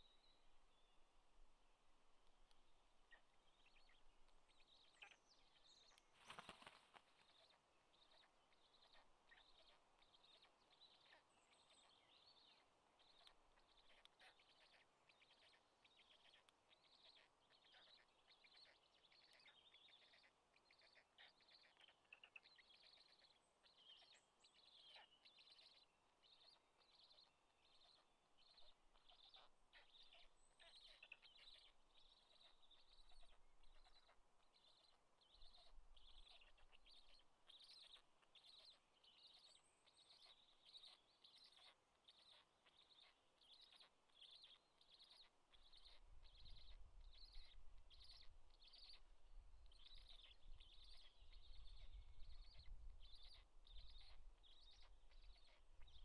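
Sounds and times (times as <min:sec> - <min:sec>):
faint bird chirping: 0:00.0 - 0:56.0.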